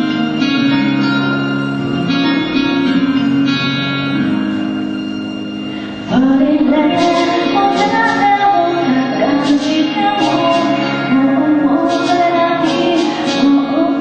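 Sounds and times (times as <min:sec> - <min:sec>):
cymbal strokes: 0:00.0 - 0:14.0
guitar chords: 0:00.0 - 0:14.0
live band music: 0:00.0 - 0:14.0
person singing: 0:06.1 - 0:14.0.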